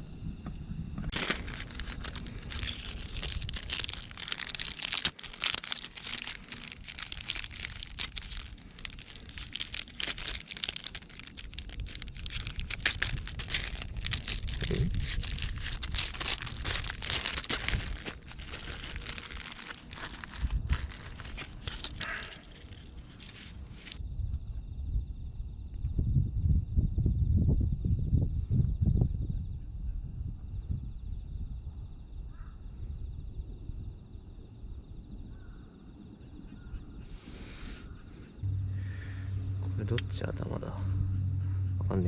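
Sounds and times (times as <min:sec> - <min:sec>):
crinkling and rustling handling: 0:01.1 - 0:24.0.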